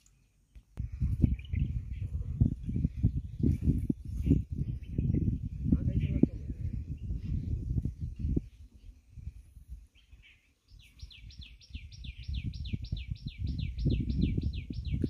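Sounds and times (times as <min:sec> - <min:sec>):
low rumble: 0:00.8 - 0:08.4.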